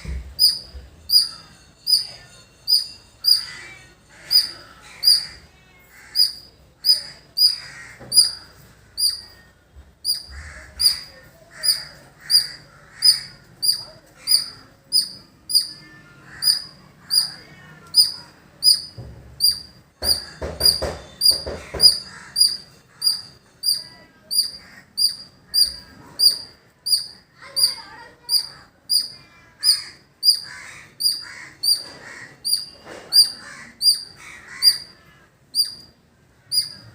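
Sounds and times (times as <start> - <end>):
squirrel chirping: 0.3 - 36.9.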